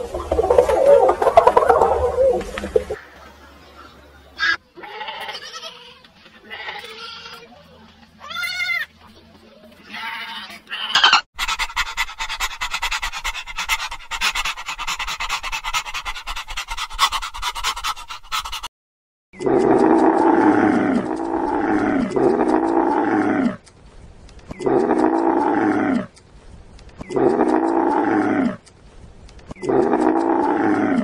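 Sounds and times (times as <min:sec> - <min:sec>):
animal calls with quavering pitch: 0:00.0 - 0:03.0, 0:09.9 - 0:18.7, 0:19.4 - 0:23.6
rapid short clicking calls: 0:19.4 - 0:31.0.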